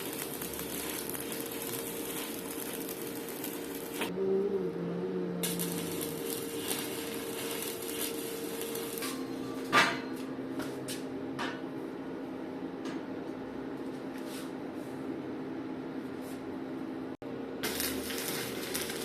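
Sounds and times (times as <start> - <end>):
welding arc crackling hiss: 0.0 - 4.1, 5.4 - 9.2, 17.6 - 19.0
machine hum: 0.0 - 14.0.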